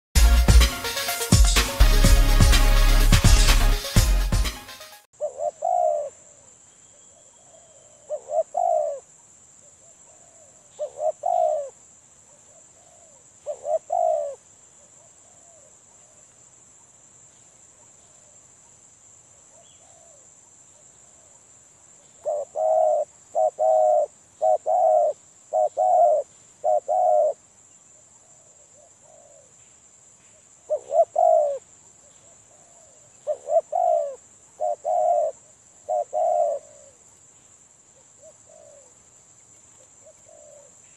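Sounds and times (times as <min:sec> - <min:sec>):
dove cooing: 0:05.2 - 0:06.4, 0:08.0 - 0:09.1, 0:10.1 - 0:11.8, 0:12.8 - 0:14.4, 0:22.2 - 0:27.4, 0:30.7 - 0:31.6, 0:32.5 - 0:37.0, 0:38.2 - 0:39.0, 0:40.0 - 0:40.8.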